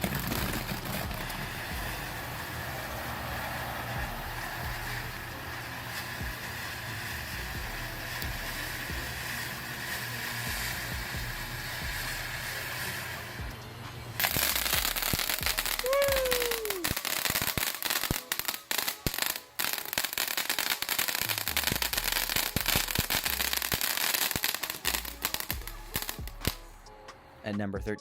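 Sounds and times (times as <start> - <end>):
firework fountain crackling: 0.0 - 26.9
falling whistle-like tone: 14.7 - 17.4.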